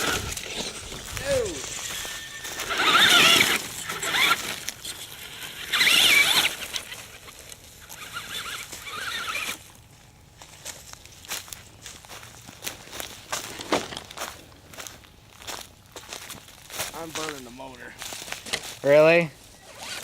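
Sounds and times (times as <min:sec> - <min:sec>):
electric toy truck motor whining: 0:00.0 - 0:09.7.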